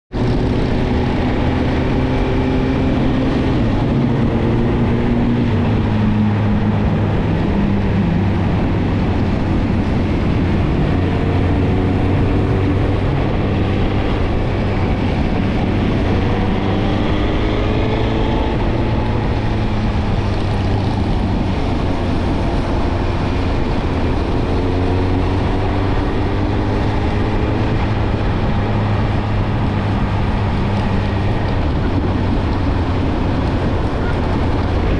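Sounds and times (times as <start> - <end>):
motorcycle engine accelerating: 0.1 - 34.9
wind noise: 0.1 - 34.9.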